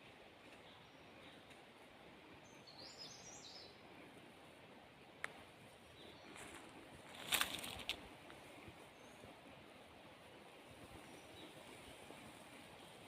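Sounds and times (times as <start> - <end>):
rustling noise: 6.3 - 8.8.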